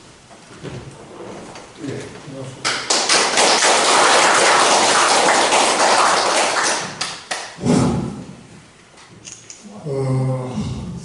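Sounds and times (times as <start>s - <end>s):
crowd applauding: 2.7s - 7.6s.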